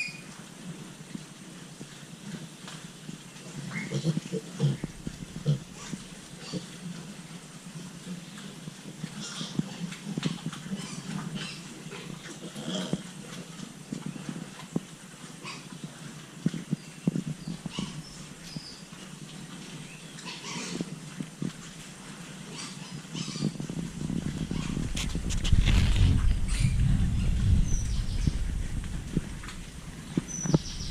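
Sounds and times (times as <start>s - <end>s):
piglets squeaking and grunting: 3.5s - 7.0s, 9.1s - 13.0s, 15.4s - 15.8s, 17.4s - 18.7s, 20.1s - 21.0s, 22.4s - 25.4s
low rumble: 23.9s - 30.9s.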